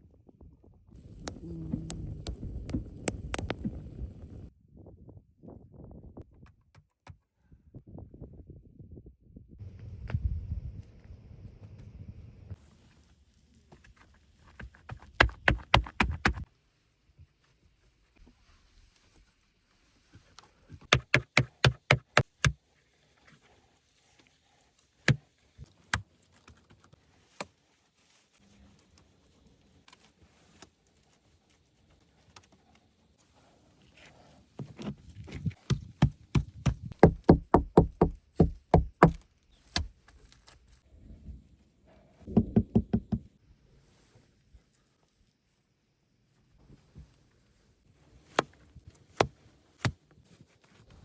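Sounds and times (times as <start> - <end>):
sharp knocking strikes: 20.9 - 22.6, 35.7 - 39.2.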